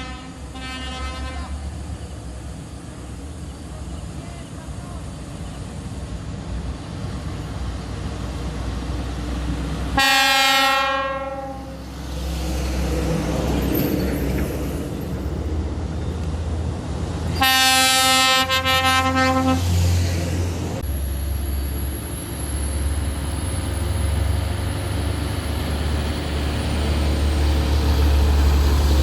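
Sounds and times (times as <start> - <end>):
truck air horn: 0.0 - 1.7, 10.0 - 11.8, 17.4 - 19.8
truck engines rumbling: 0.0 - 29.0.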